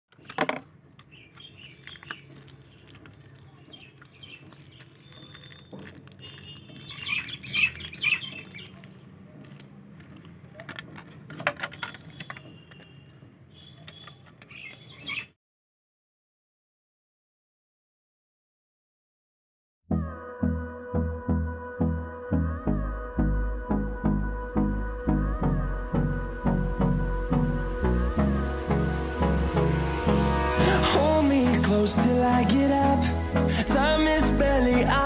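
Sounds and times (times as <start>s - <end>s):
birds chirping: 0.2s - 9.4s, 12.0s - 15.4s.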